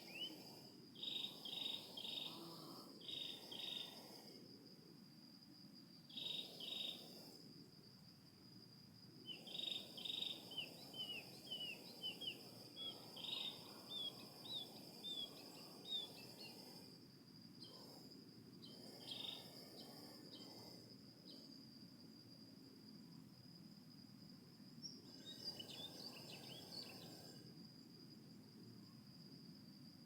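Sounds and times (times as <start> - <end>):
crickets droning: 0.0 - 30.0
bird chirping: 9.3 - 16.5.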